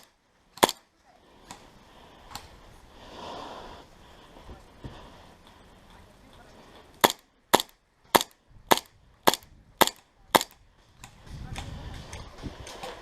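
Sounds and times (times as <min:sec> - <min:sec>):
airsoft gun shots: 0:00.0 - 0:00.8, 0:07.0 - 0:10.6.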